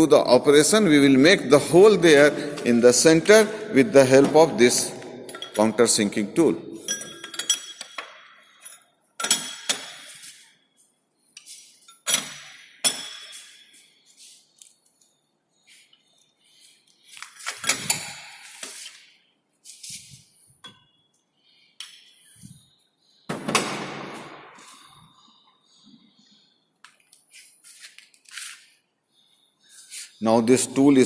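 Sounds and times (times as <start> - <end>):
metal tools clinking: 5.3 - 6.0, 6.8 - 10.4, 11.4 - 13.8, 17.3 - 18.8.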